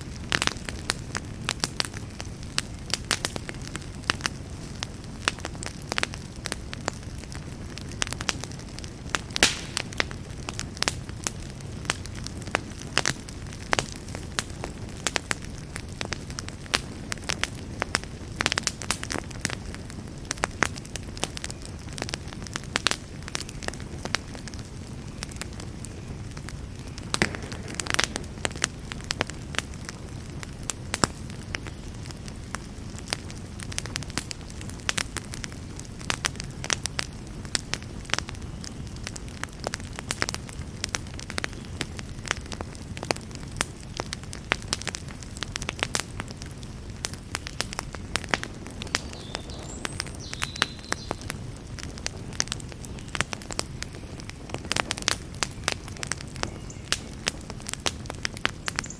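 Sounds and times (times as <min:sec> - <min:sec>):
campfire popping and crackling: 0:00.0 - 0:58.9
low rumble of flames: 0:00.0 - 0:58.9.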